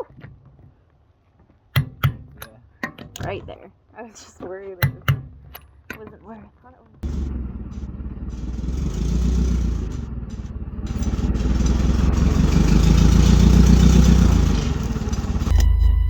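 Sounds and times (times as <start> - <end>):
vehicle engine running: 7.0 - 16.0.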